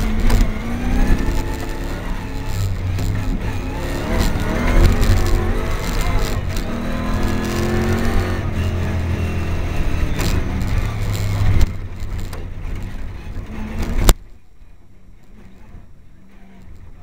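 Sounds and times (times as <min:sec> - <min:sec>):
engine revving from inside cabin: 0:00.0 - 0:11.7.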